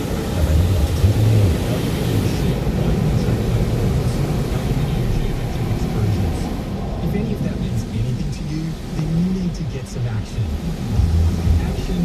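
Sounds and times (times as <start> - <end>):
car wash machinery rumbling: 0.0 - 12.0.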